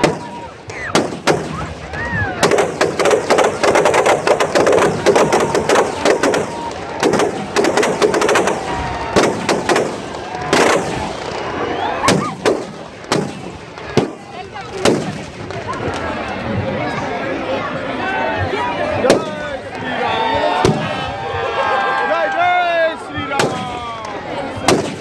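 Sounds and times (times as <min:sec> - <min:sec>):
firecrackers banging: 0:00.0 - 0:25.0.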